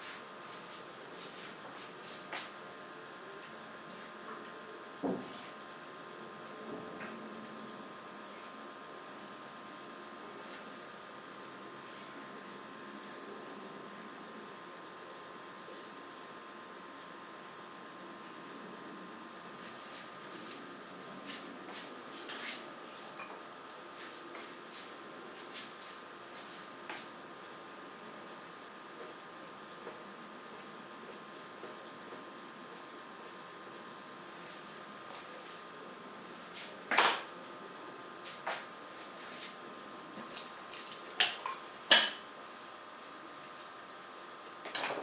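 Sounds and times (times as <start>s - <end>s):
paintbrush strokes: 0.0s - 2.5s, 19.6s - 22.7s, 24.0s - 27.1s.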